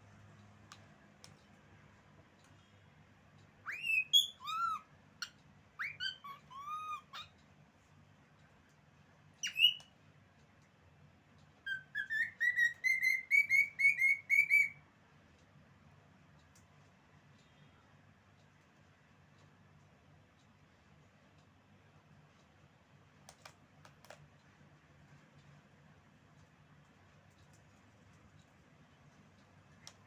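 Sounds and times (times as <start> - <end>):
cockatiel whistling: 3.6 - 7.3, 9.4 - 9.9, 11.6 - 14.8.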